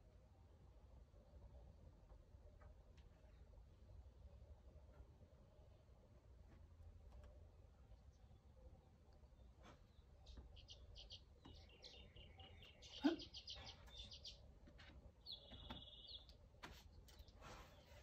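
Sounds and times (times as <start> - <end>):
small birds chirping: 6.9 - 18.0.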